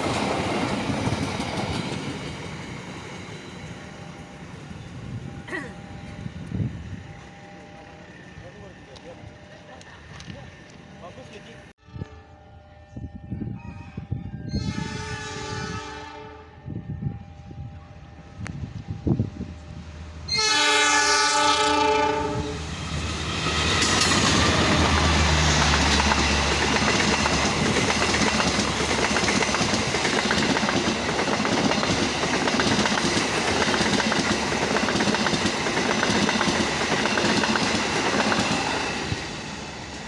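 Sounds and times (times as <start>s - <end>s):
train wheels rolling over rails: 0.0s - 5.0s, 22.6s - 40.0s
locomotive horn: 11.8s - 17.7s, 20.3s - 22.6s.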